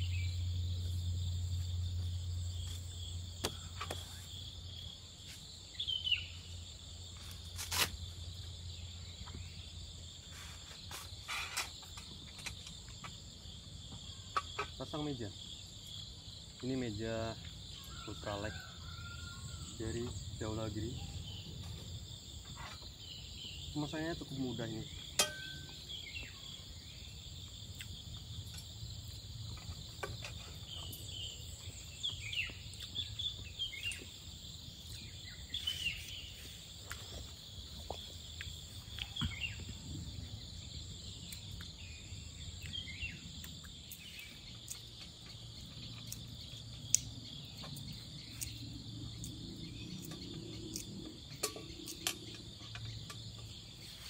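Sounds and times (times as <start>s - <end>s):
insects chirping: 0.0s - 54.0s
camp table clicks and knocks: 11.5s - 13.2s, 14.0s - 14.9s, 25.0s - 25.9s, 50.1s - 53.6s.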